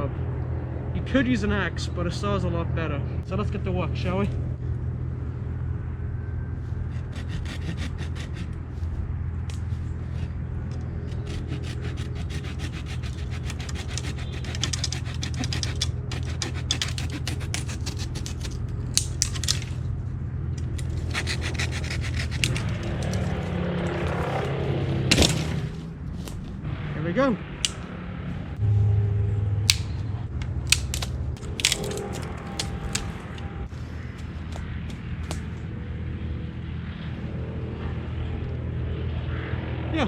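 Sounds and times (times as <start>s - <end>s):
hand saw cutting wood: 6.9s - 8.6s, 11.0s - 19.8s, 20.8s - 24.5s, 25.1s - 25.8s, 30.7s - 33.2s.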